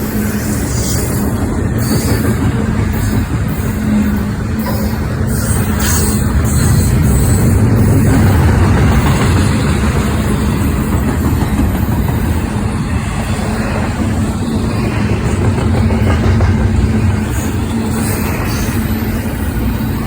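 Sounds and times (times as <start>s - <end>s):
diesel train engine rumble: 0.0s - 20.0s.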